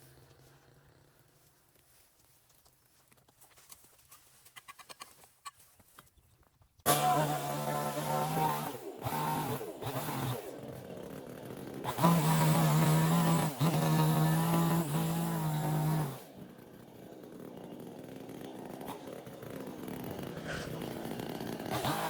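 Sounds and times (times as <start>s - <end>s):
chainsaw running: 0.0s - 1.7s, 6.9s - 22.0s.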